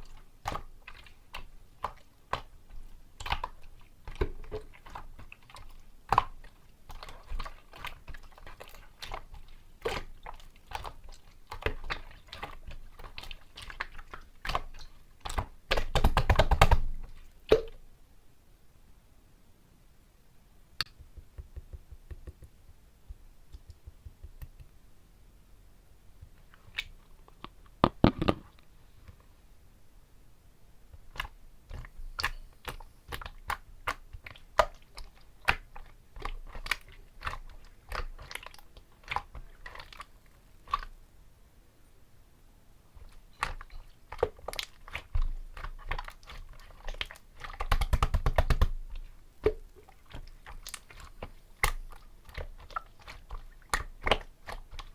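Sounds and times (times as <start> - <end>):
slime squished by hand: 0.0 - 17.8, 31.0 - 41.0, 43.0 - 54.9.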